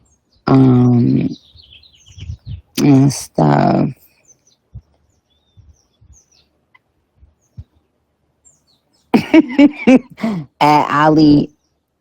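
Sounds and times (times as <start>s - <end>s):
birds chirping faintly: 0.0s - 12.0s
woman's voice with bending notes: 0.5s - 1.4s, 2.1s - 4.1s, 10.2s - 11.5s.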